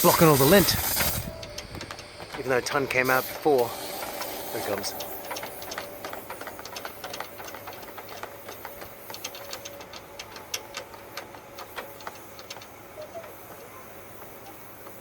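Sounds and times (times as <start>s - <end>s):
debris clicking in vent duct: 0.0s - 15.0s
rush of air: 3.1s - 6.7s.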